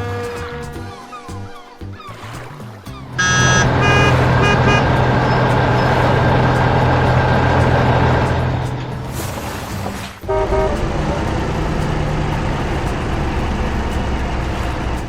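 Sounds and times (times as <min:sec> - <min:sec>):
music: 0:00.0 - 0:15.0
short high beeps: 0:03.2 - 0:04.8
bright tone: 0:03.2 - 0:04.9
machine engine running: 0:03.2 - 0:09.0.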